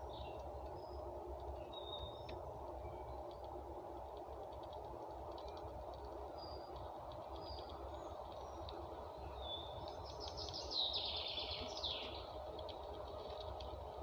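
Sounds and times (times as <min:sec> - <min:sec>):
low background noise: 0:00.0 - 0:14.0
songbird whistling and twittering: 0:09.4 - 0:12.2.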